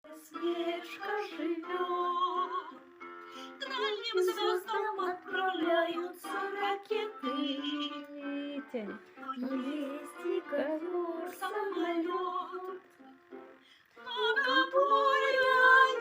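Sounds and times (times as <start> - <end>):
musical accompaniment: 0.1 - 16.0
high voice singing with vibrato: 14.0 - 16.0.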